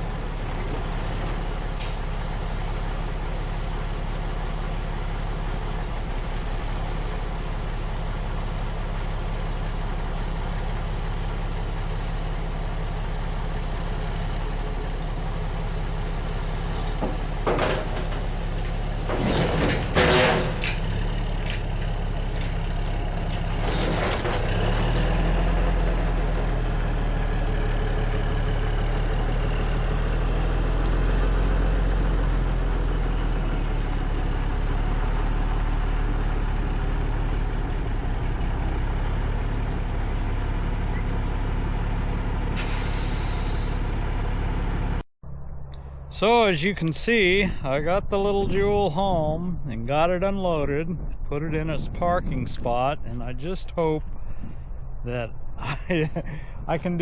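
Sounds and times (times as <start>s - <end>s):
diesel truck engine running: 0.0s - 57.0s
air brake hisses: 1.8s - 2.1s, 42.5s - 43.8s.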